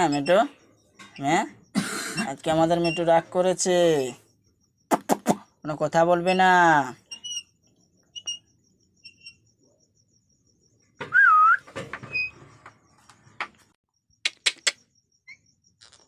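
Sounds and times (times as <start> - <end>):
parakeet whistle: 11.0 - 11.6
sharp clicks: 14.2 - 14.8.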